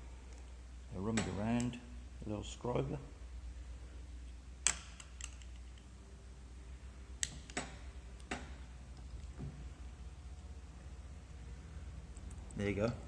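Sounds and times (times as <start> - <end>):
low steady hum: 0.0 - 13.0
light metal clicks and taps: 12.1 - 13.0.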